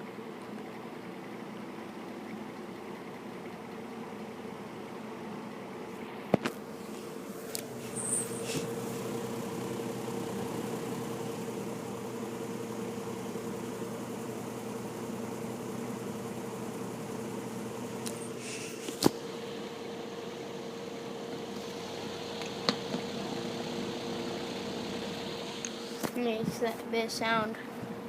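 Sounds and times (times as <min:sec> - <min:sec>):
fan motor hum: 0:00.0 - 0:28.0.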